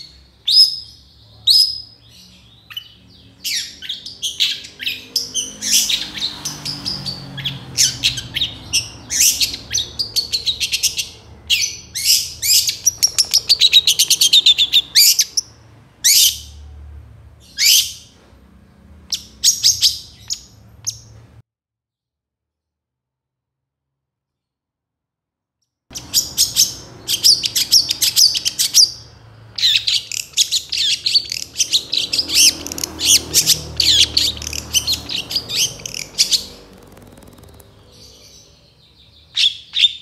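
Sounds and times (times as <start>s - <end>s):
bird singing sharp chirps: 0.0s - 16.6s, 25.9s - 40.0s.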